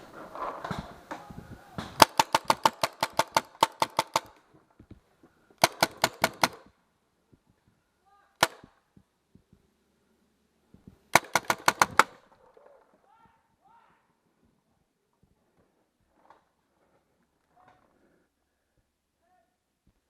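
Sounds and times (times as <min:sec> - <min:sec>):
paintball marker firing: 0:00.6 - 0:04.5, 0:05.6 - 0:06.8, 0:08.4 - 0:08.8, 0:11.1 - 0:12.4.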